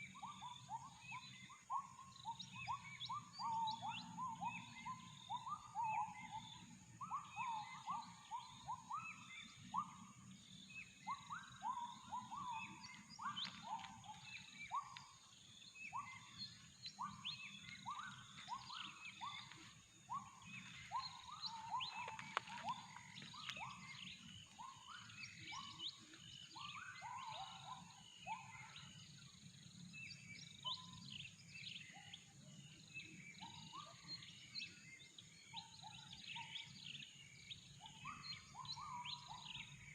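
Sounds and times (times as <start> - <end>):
gibbons calling: 0.0 - 29.4
birds chirping and whistling: 0.0 - 39.9.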